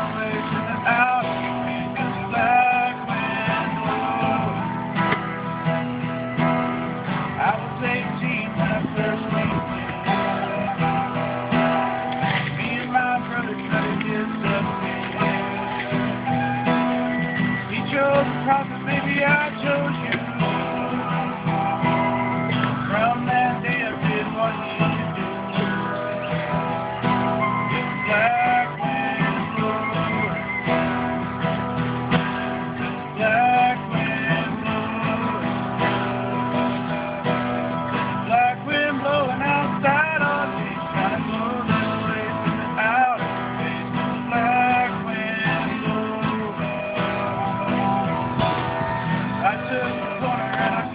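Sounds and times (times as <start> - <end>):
acoustic guitar strumming chords: 0.0 - 50.9
recorder playing melody: 13.5 - 17.8, 20.1 - 24.2, 24.9 - 33.2, 46.7 - 50.9.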